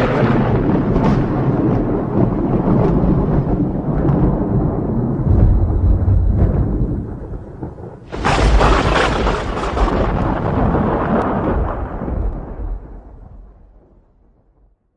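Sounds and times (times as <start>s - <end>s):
sharp thunderclap: 0.0s - 14.7s
thunder rumbling: 0.0s - 14.7s.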